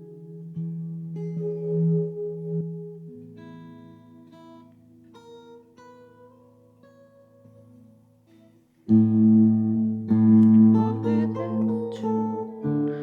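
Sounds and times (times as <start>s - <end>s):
acoustic guitar: 0.0s - 13.0s.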